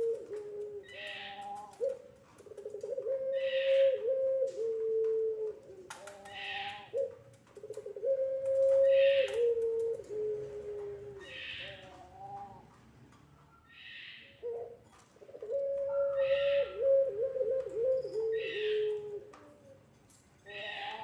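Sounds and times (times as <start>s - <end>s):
dove cooing: 0.0s - 12.8s, 13.7s - 21.0s.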